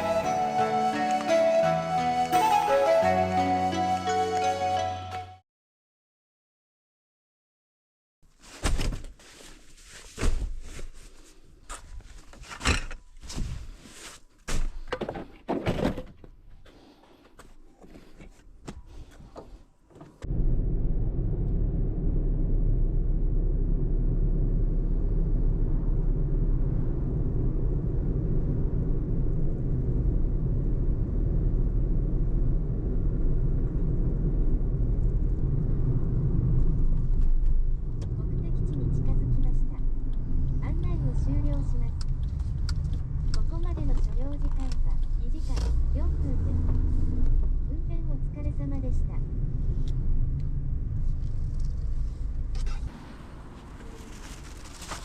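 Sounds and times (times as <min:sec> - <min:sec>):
car driving rumble from inside: 0:20.2 - 0:55.0.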